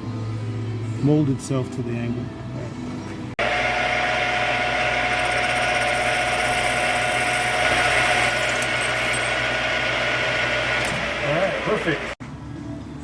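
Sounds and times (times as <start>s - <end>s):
power tool whirring: 3.4s - 12.2s.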